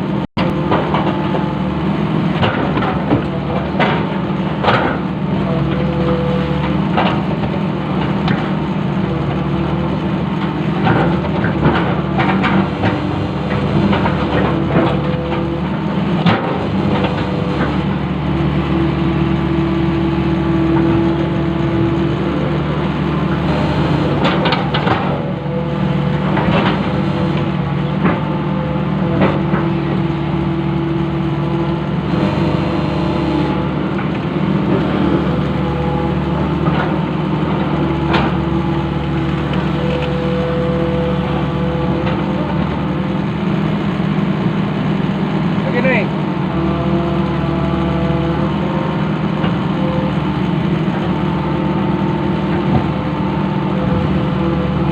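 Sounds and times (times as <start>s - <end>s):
excavator diesel engine running: 0.0s - 54.9s
knocks and clanks: 23.3s - 25.6s, 26.2s - 30.1s.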